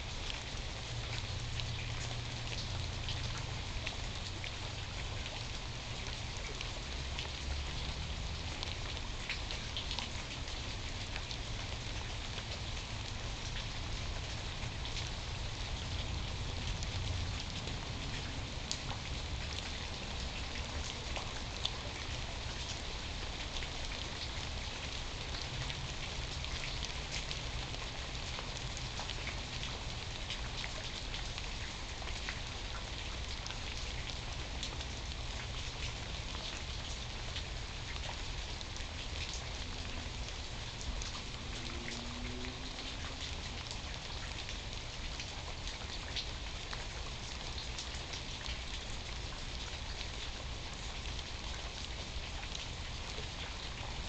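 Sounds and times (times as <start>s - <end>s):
raindrops ticking close by: 0.0s - 54.0s
steady rain falling: 0.0s - 54.0s.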